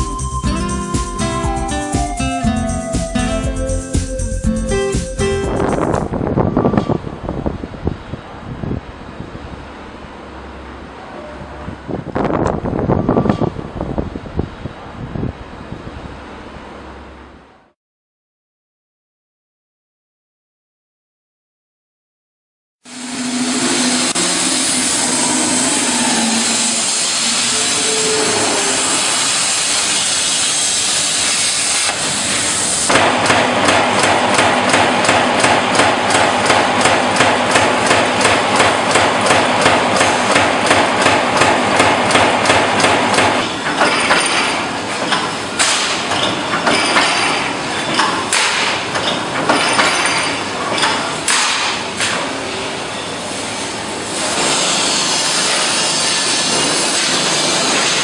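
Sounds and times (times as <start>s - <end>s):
machinery hissing: 22.9s - 43.7s, 51.8s - 58.0s
machine hammering strokes: 22.9s - 52.1s, 54.2s - 58.0s.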